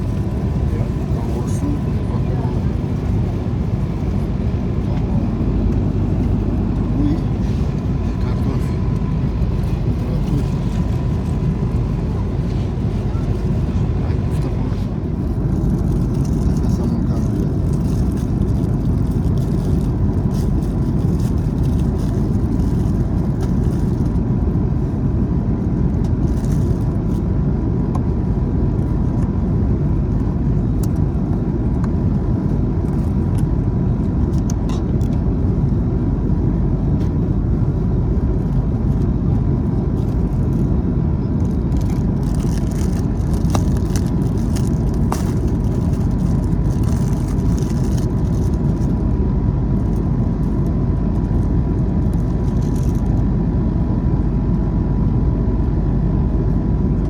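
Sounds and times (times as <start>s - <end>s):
thin steady whine: 0.0s - 17.6s
jet engines rushing: 0.0s - 26.3s, 26.9s - 57.0s.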